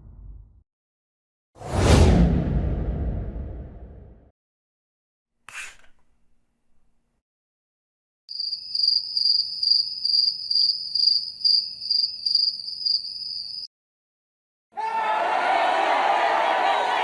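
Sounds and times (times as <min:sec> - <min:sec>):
crickets chirping: 0:08.3 - 0:13.7.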